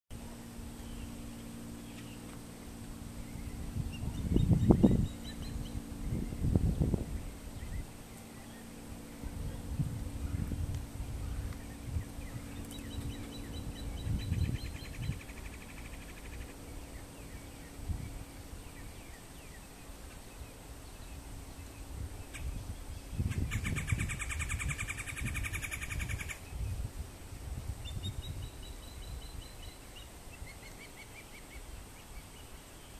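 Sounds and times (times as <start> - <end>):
low rumble: 0.2 - 19.9
woodpecker rolling call: 11.2 - 17.8, 23.2 - 26.5.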